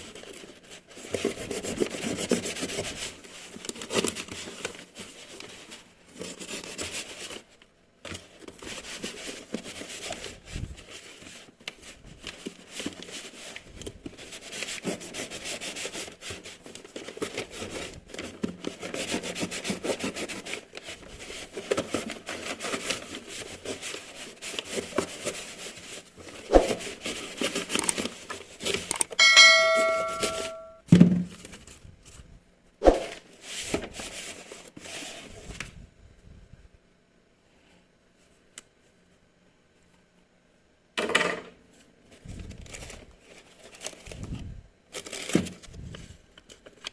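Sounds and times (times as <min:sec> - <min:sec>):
packaging rustling and scraping: 0:00.0 - 0:29.0, 0:42.2 - 0:46.8
ringing chime: 0:29.2 - 0:30.8.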